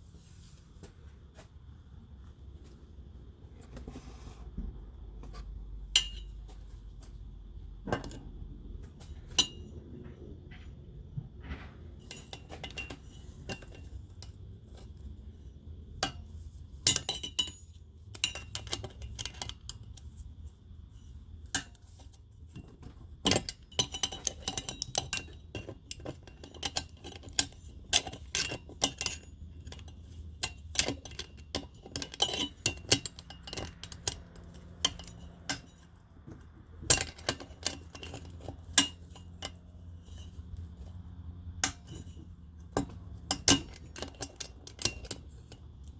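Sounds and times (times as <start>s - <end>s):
metal tools clinking on metal: 5.9s - 6.8s, 11.4s - 15.0s, 16.9s - 20.1s, 23.3s - 45.9s.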